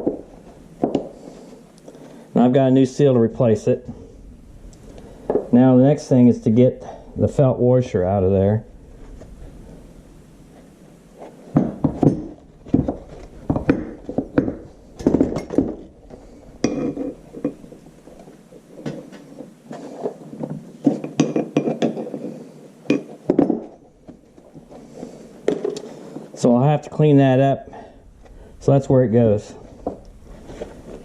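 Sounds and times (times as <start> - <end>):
metal tool scraping and knocking metal: 16.6 - 17.7.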